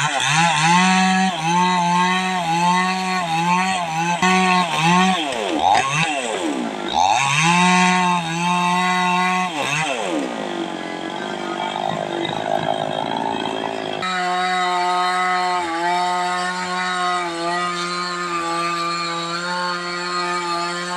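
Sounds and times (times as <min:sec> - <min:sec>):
tractor engine revving: 0:00.0 - 0:20.9.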